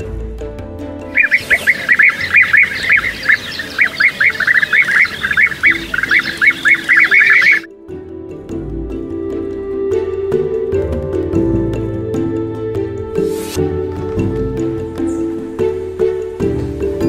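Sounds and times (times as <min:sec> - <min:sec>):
birds calling harsh notes: 0:01.1 - 0:07.7.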